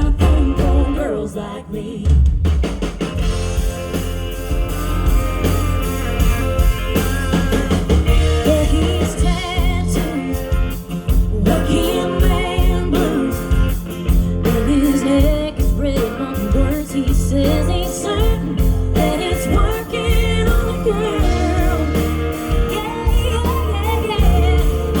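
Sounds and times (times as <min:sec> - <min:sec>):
guitar: 0:00.0 - 0:25.0
drum and bass beat: 0:02.0 - 0:25.0
lead melody: 0:03.2 - 0:09.4.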